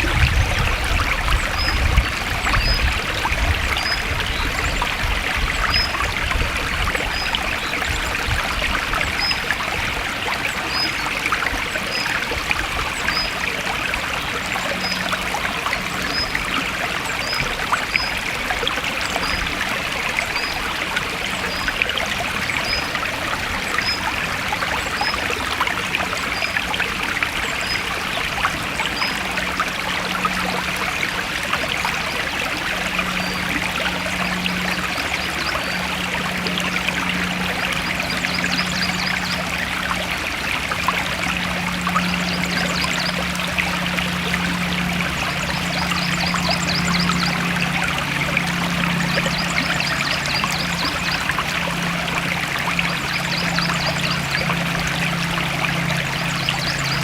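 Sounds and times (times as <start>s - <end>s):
stream flowing: 0.0s - 57.0s
low hum: 20.2s - 57.0s.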